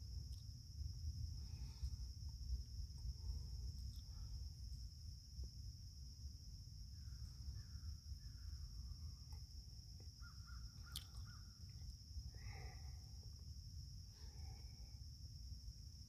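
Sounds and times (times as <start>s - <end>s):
high insect drone: 0.0s - 16.0s
faint bird calls: 10.2s - 13.2s.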